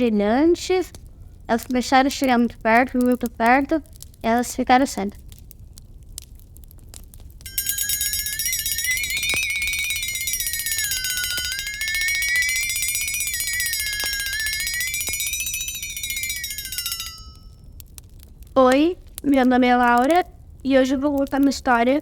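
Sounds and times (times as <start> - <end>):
eerie wavering buzzy tone: 7.5 - 17.4.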